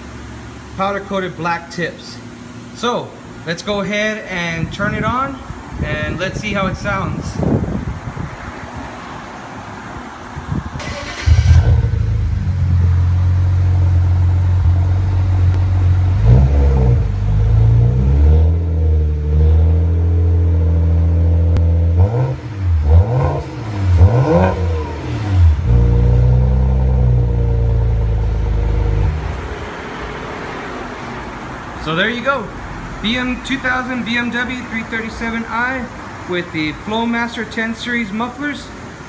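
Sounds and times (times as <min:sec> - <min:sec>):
car engine starting and idling: 0:07.8 - 0:36.3
car engine revving: 0:10.8 - 0:31.8.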